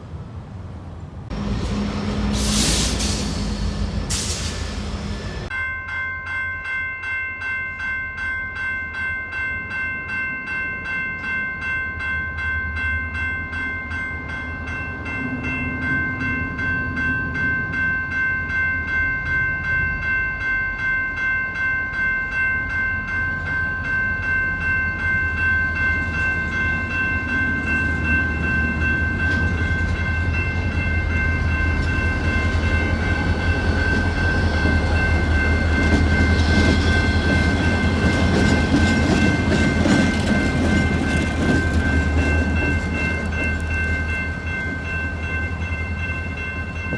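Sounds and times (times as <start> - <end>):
diesel locomotive rumble: 1.2 - 5.5, 25.7 - 46.4
railroad crossing bell ringing: 1.3 - 46.9.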